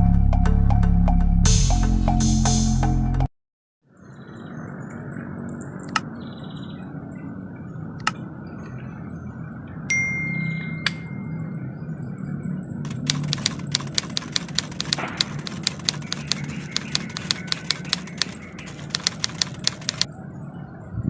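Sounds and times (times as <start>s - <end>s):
sharp ticking clicks: 4.9s - 6.1s, 8.0s - 8.2s, 12.8s - 20.1s.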